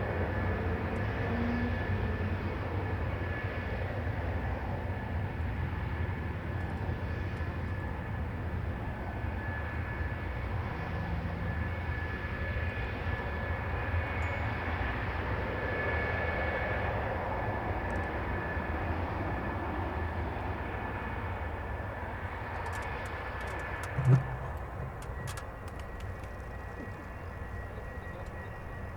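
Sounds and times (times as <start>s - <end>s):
jet engine running: 17.5s - 28.9s.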